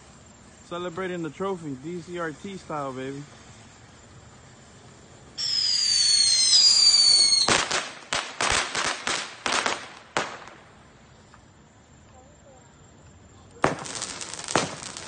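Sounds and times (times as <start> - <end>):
firework whistling: 0.0 - 15.0
crackling firework bangs: 0.7 - 11.5, 13.5 - 15.0.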